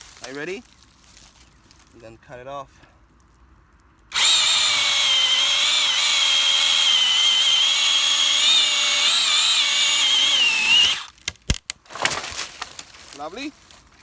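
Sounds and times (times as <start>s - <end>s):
mini chainsaw whine: 4.1s - 11.1s.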